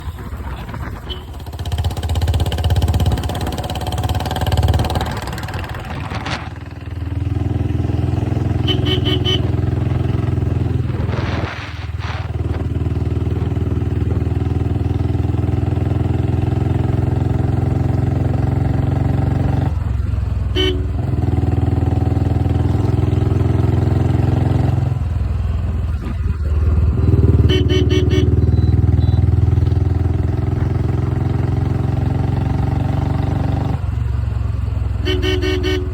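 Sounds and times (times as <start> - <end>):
loud motorcycle engine running: 0.0 - 35.9
horn sounding: 8.1 - 11.5, 20.5 - 21.2, 27.2 - 29.4, 35.0 - 35.9.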